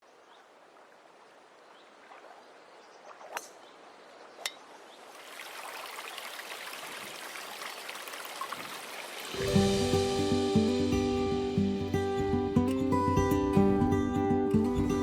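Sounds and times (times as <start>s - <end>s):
trickling water: 0.1s - 10.8s.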